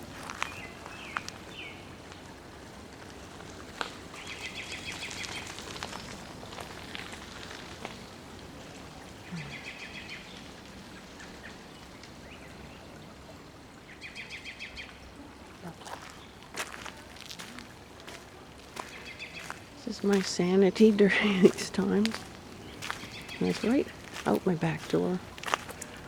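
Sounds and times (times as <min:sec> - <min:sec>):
songbird trilling: 0:21.4 - 0:25.4.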